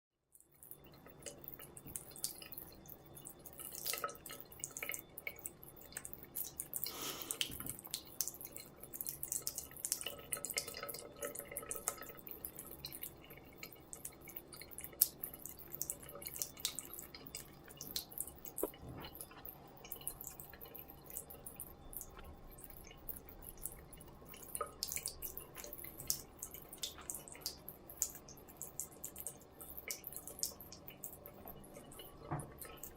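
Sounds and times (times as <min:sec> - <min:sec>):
water dripping from a tap: 0:00.3 - 0:32.9.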